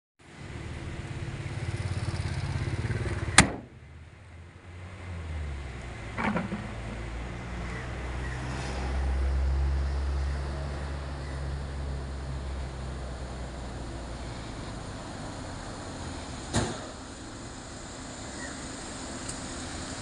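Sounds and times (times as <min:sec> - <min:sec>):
car engine idling: 0:11.2 - 0:20.0.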